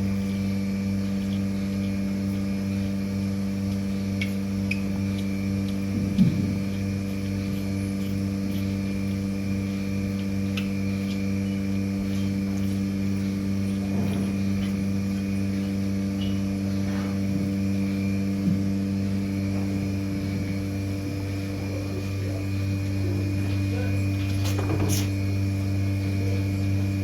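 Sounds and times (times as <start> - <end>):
low machine hum: 0.0 - 27.0.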